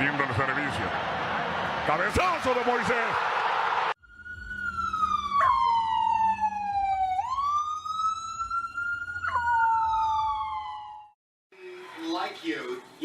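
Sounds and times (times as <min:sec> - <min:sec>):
long wailing tone: 0:04.0 - 0:11.1.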